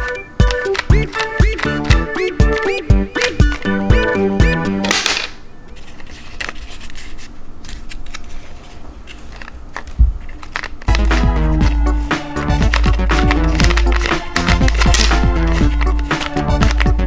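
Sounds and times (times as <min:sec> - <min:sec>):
background music: 0:00.0 - 0:05.1, 0:10.9 - 0:17.0
handling clicks and rustling: 0:00.0 - 0:17.0.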